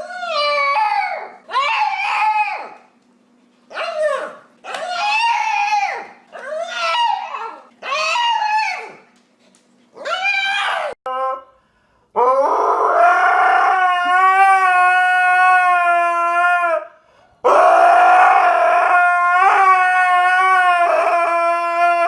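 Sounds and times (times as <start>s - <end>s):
dog whining howls: 0.0s - 2.9s, 3.7s - 9.0s, 10.0s - 11.5s, 12.2s - 16.9s, 17.5s - 22.0s
faint steady hum: 0.0s - 15.3s.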